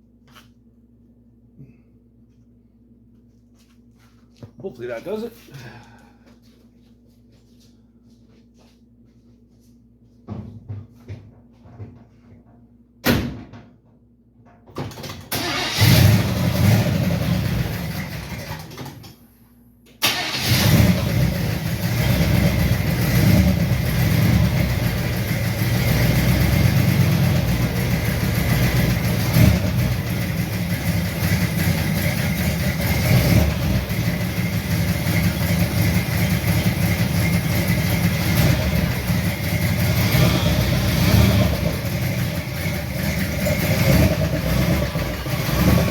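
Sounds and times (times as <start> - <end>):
vehicle engine starting and idling: 14.8 - 19.3, 19.9 - 45.9.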